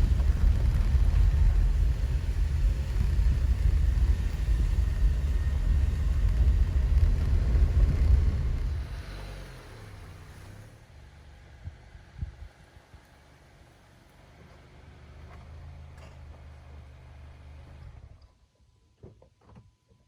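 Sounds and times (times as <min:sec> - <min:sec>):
car road rumble: 0:00.0 - 0:12.7.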